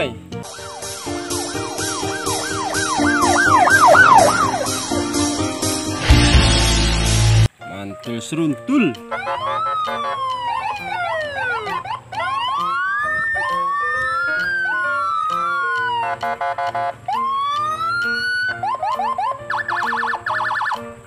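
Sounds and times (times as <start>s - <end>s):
background music with bass notes: 0.0s - 21.0s
electronic siren-like sound effects: 0.5s - 5.0s, 9.3s - 16.0s.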